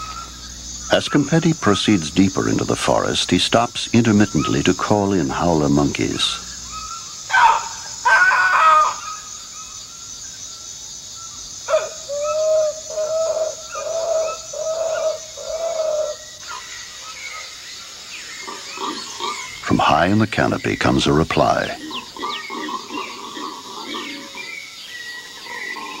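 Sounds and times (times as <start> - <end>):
low hooting calls by man: 0.0 - 9.2, 11.7 - 16.7, 18.4 - 24.6
forest insects droning: 0.0 - 26.0
man calling loudly: 0.9 - 6.5, 19.6 - 21.9.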